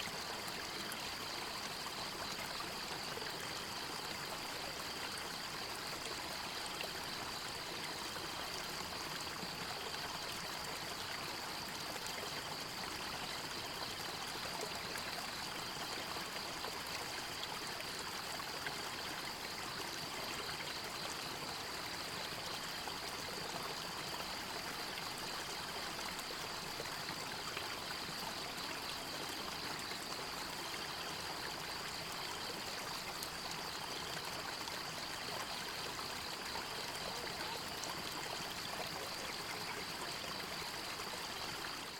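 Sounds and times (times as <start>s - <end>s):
stream water flowing: 0.0s - 41.9s.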